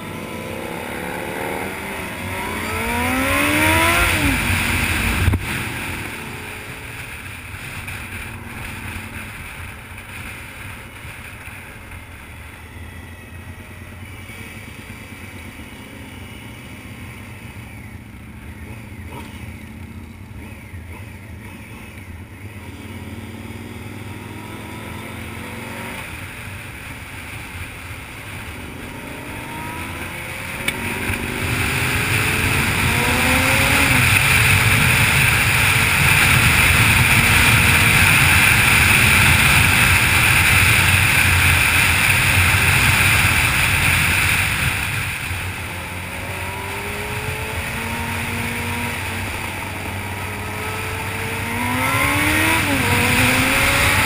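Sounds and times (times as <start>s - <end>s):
motorcycle engine running: 0.0s - 54.0s
wind noise: 29.5s - 54.0s.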